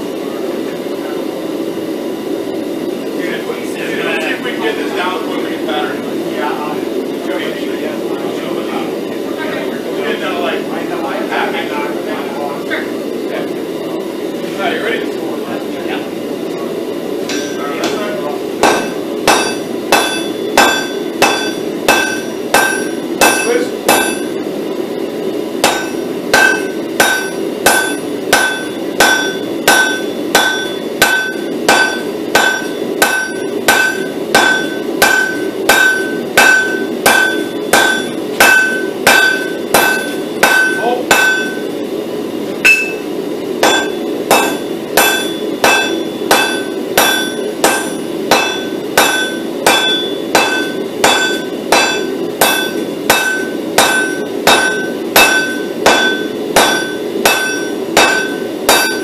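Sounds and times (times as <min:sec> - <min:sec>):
hammer striking steel on anvil: 0:17.2 - 0:24.4, 0:25.6 - 0:41.8, 0:42.6 - 0:59.0.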